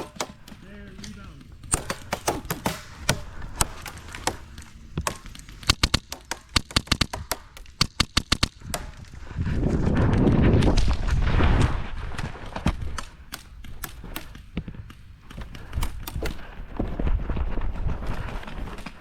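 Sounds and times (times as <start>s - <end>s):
airsoft gun shots: 0.0s - 9.0s.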